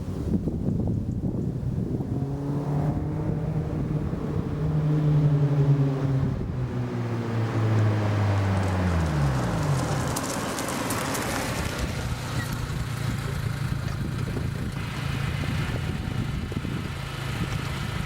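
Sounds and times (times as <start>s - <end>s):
car engine idling: 3.7s - 18.0s.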